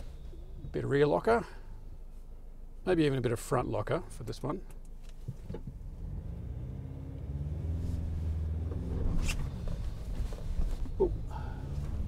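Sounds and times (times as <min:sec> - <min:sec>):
vehicle engine running under load: 0:07.2 - 0:12.0.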